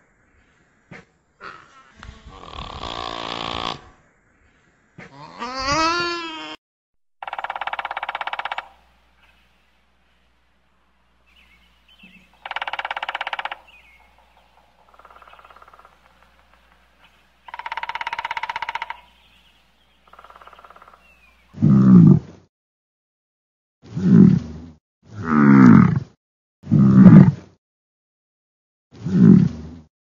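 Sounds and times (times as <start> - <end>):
deep grunting animal call: 1.4 - 4.0, 5.0 - 6.5, 7.2 - 9.3, 11.3 - 19.4, 20.1 - 22.2, 25.2 - 26.1, 26.7 - 27.3
pulsed animal calls: 7.2 - 9.4, 12.1 - 19.2.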